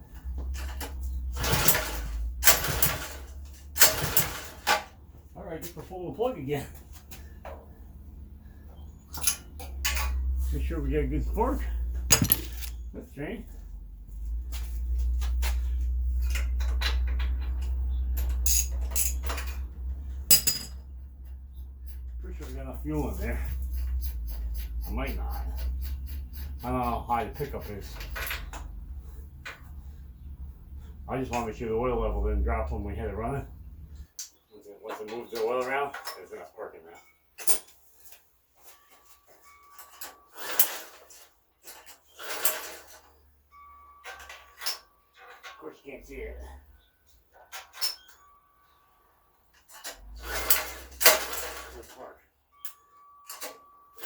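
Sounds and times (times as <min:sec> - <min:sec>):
metal tools clinking: 0:09.1 - 0:10.7, 0:11.4 - 0:12.9, 0:14.8 - 0:24.0, 0:37.0 - 0:45.7, 0:46.8 - 0:48.8, 0:49.5 - 0:54.0.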